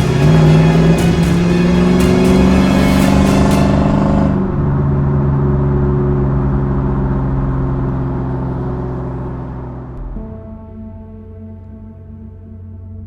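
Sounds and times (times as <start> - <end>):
music: 0.0 - 4.6, 10.0 - 13.0
truck engine revving and idling: 0.0 - 10.4.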